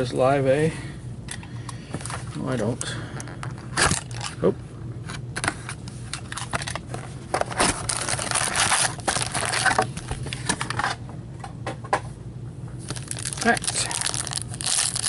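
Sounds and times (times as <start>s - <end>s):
foil wrapper tearing and crinkling: 7.6s - 9.9s, 12.8s - 15.0s.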